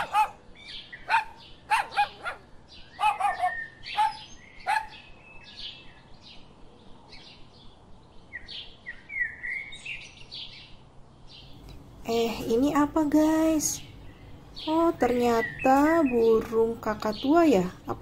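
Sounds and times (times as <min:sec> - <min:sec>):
dog barking: 0:00.0 - 0:00.4, 0:01.0 - 0:05.0
birds chirping and whistling: 0:00.0 - 0:06.4, 0:08.3 - 0:10.7, 0:11.3 - 0:17.9.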